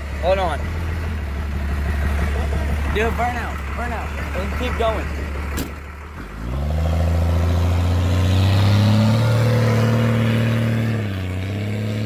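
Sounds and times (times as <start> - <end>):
engine revving during burnout: 6.2 - 12.0.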